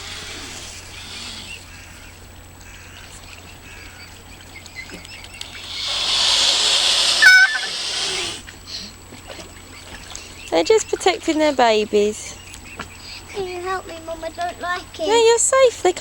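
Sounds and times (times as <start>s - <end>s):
swan hissing: 0.0s - 3.0s, 5.4s - 8.9s
short squeak: 7.2s - 7.8s.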